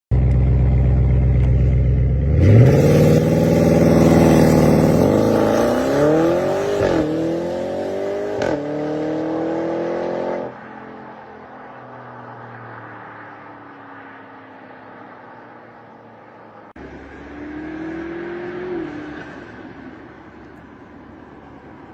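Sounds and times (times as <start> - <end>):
car engine accelerating: 0.1 - 10.8, 16.7 - 21.9.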